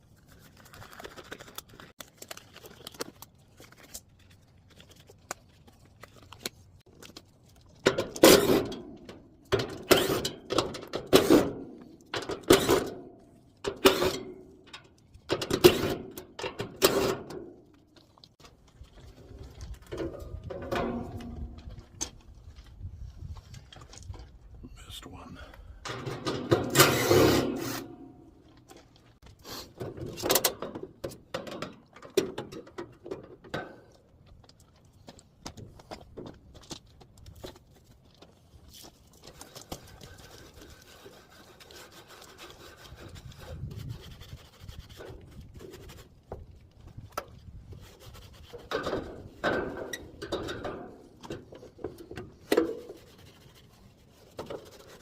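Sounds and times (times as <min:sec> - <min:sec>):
hand scrubbing and scraping: 0:26.7 - 0:28.4, 0:38.7 - 0:46.7, 0:47.6 - 0:49.4, 0:51.0 - 0:55.0.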